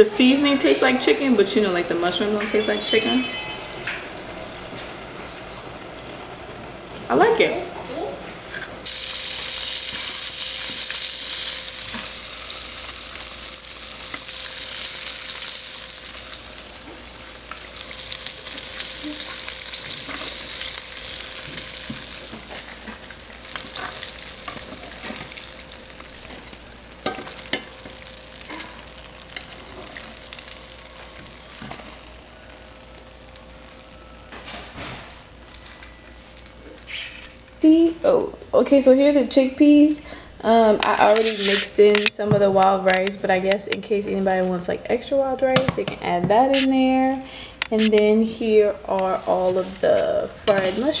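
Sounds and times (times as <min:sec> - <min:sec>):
faint steady hum: 0:00.0 - 0:51.0
mushrooms frying in oil: 0:08.8 - 0:34.0.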